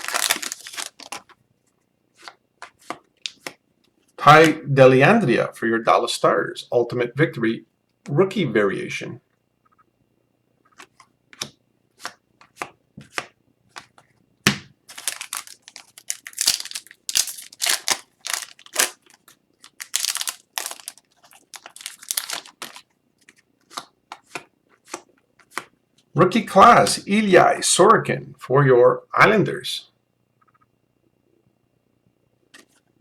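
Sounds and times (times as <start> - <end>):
card pack wrappers tearing: 0.0 - 1.3, 14.9 - 22.9
cards being handled: 0.0 - 1.4, 2.2 - 3.6, 10.7 - 25.8.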